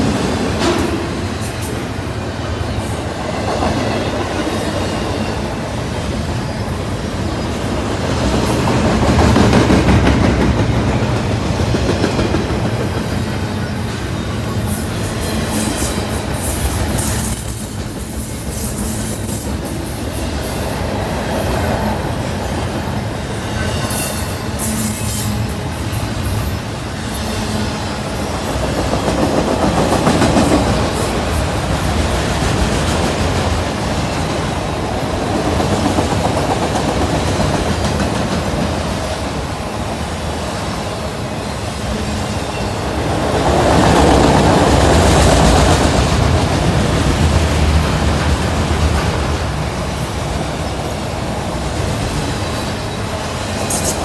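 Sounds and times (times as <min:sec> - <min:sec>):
steel wheels running on rails: 0:00.0 - 0:54.0
high wheel squeals: 0:13.3 - 0:28.5.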